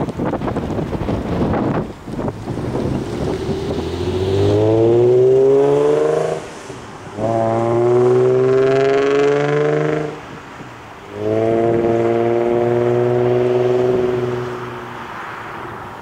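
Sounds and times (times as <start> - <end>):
car accelerating past: 2.3 - 10.4, 11.1 - 15.8.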